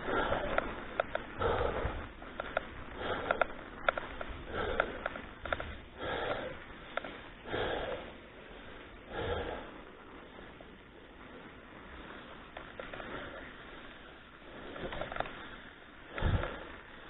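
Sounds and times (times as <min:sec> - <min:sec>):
person breathing hard: 0:00.0 - 0:17.0
sharp clicks: 0:00.2 - 0:07.2.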